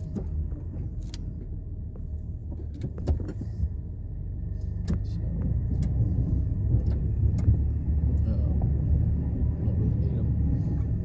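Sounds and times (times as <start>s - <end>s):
truck engine and road rumble: 0.0s - 11.0s
sharp clicks and knocks: 2.5s - 3.6s.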